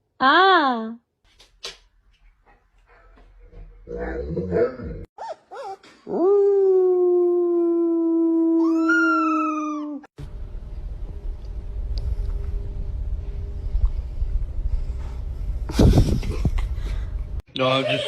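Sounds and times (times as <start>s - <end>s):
low rumbling noise: 10.2s - 17.4s.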